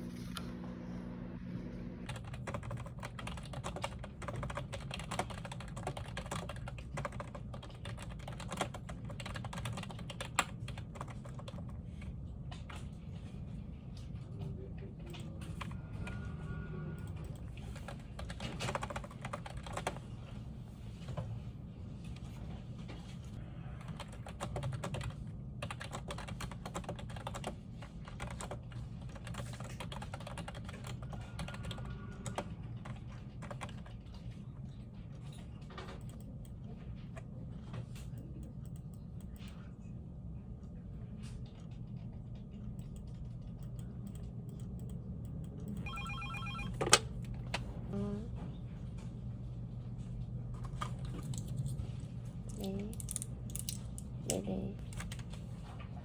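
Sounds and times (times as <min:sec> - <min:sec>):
steady low hum: 0:00.0 - 0:31.4
keyboard typing: 0:02.1 - 0:11.8, 0:17.1 - 0:20.0, 0:23.8 - 0:34.0, 0:45.6 - 0:47.0
telephone ringing: 0:45.8 - 0:46.9.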